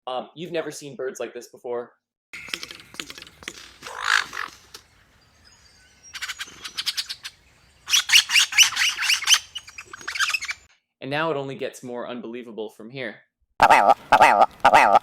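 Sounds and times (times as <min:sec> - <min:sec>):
bird chirping: 0:02.4 - 0:10.7.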